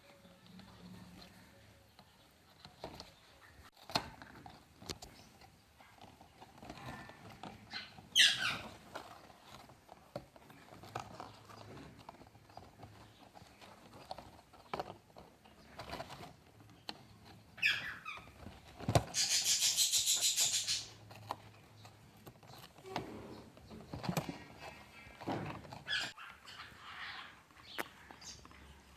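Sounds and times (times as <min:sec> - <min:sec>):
light tapping and scratching: 0:00.0 - 0:28.9
parrots squawking: 0:07.7 - 0:08.7, 0:17.6 - 0:18.2, 0:19.1 - 0:21.0, 0:25.9 - 0:27.5.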